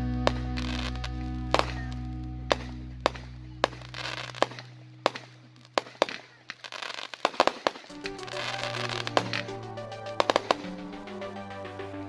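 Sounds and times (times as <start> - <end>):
music: 0.0 - 5.2, 7.9 - 12.0
fireworks banging: 0.2 - 12.0
fireworks crackling hiss: 3.0 - 11.5.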